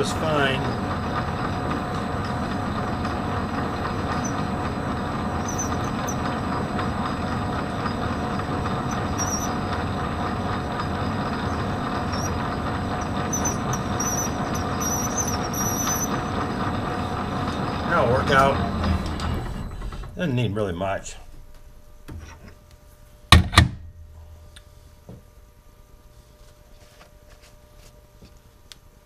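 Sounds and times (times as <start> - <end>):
metal lathe humming: 0.0 - 22.6
short high squeaks: 4.0 - 4.6, 5.3 - 6.3, 8.7 - 9.8, 11.2 - 16.6.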